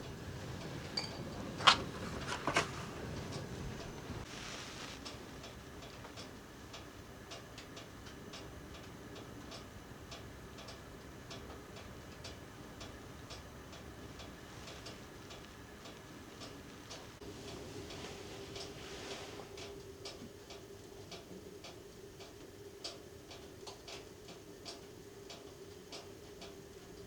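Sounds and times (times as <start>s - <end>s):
low background hiss: 0.0s - 27.0s
light ticking clicks: 5.0s - 17.2s, 19.6s - 27.0s.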